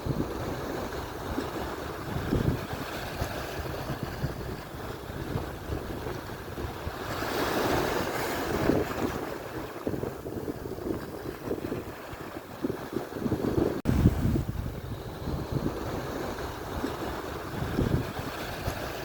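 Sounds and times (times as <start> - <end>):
waves breaking on shore: 0.0 - 19.0
wind buffeting microphone: 0.0 - 19.0.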